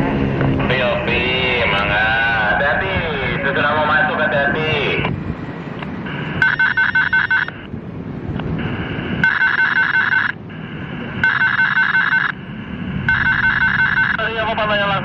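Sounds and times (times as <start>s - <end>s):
level crossing warning bell: 6.0s - 7.6s, 8.6s - 14.6s.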